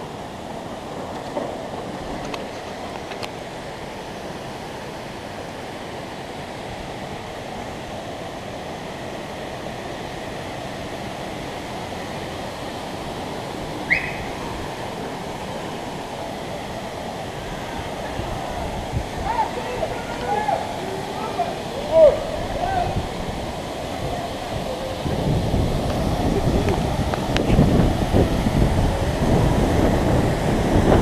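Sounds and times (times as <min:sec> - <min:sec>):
waterfalls rushing into pools: 0:00.0 - 0:31.0
short high chirp: 0:13.9 - 0:14.3.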